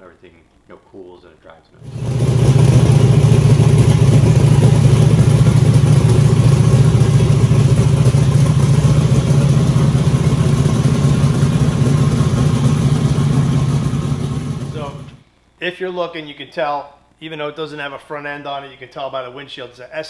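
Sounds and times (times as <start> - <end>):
car engine idling: 1.8 - 15.2.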